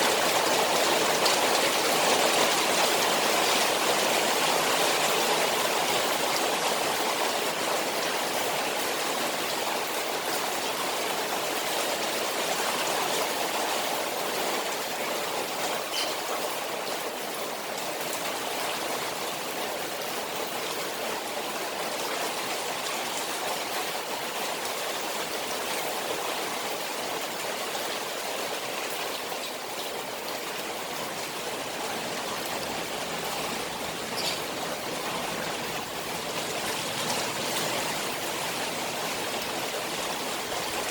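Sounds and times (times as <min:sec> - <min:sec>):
rain on pond: 0:00.0 - 0:40.9
trickling water: 0:00.0 - 0:40.9
faint drips: 0:32.0 - 0:35.5.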